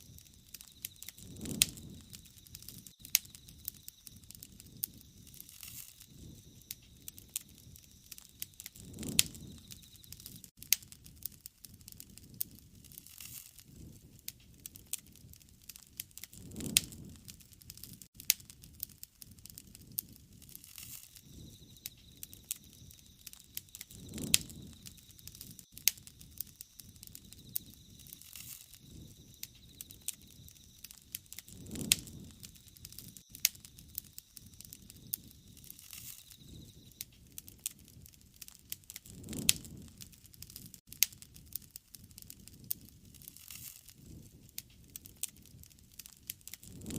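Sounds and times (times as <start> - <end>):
faint high whistle: 0.0 - 10.5, 20.9 - 37.1
low rush of flames: 0.0 - 46.9
wood fire crackling and popping: 0.0 - 46.9.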